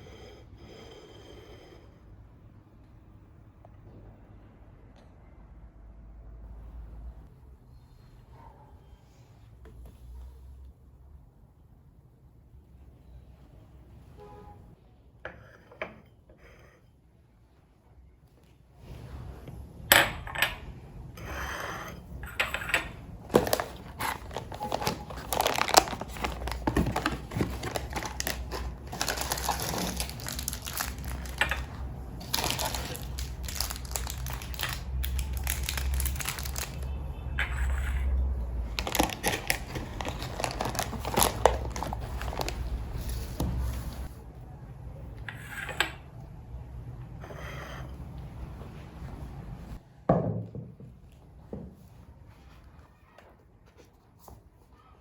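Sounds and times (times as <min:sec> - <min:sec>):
crinkling and crunching: 0:23.2 - 0:37.0, 0:38.5 - 0:44.1.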